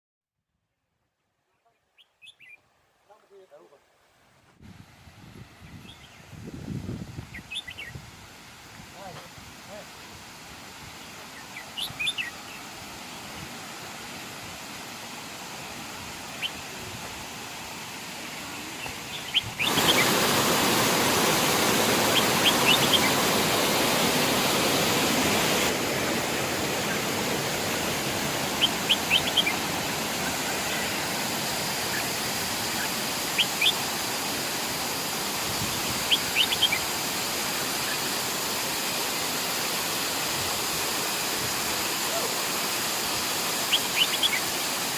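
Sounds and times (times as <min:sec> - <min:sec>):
bird chirps: 0:01.5 - 0:02.6, 0:07.3 - 0:08.0, 0:11.4 - 0:12.6, 0:28.6 - 0:29.6
waterfall rushing: 0:07.4 - 0:44.9.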